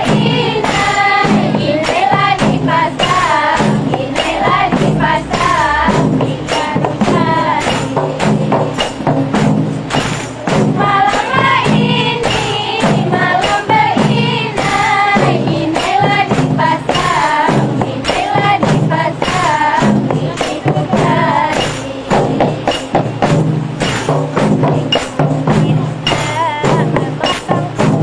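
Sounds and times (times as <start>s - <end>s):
frame drums with jingles: 0.0s - 28.0s
person singing: 25.6s - 28.0s.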